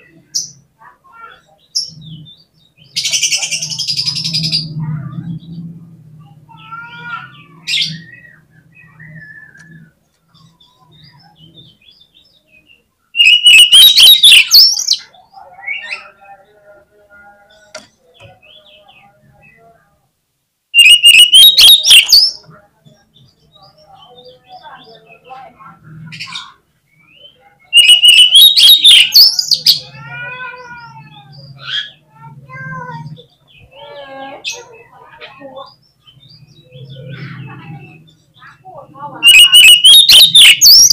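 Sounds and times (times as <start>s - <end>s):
bird singing chattering notes: 13.2s - 15.1s, 20.8s - 25.4s, 26.2s - 30.0s, 33.0s - 40.9s
faint bird chirps: 20.8s - 40.9s.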